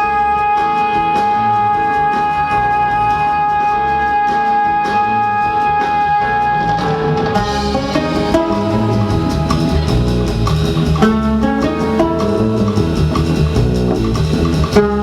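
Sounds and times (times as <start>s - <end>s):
triple-pipe reed instrument melody: 0.0s - 13.2s
held reed drone: 7.4s - 15.0s.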